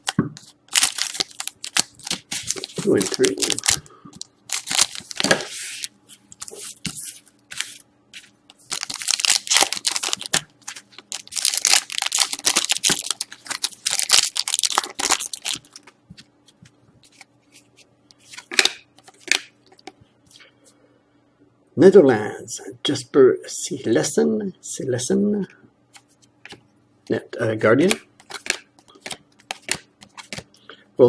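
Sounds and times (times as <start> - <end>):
card pack wrappers tearing: 0.7 - 3.8, 4.5 - 7.8, 8.6 - 15.9.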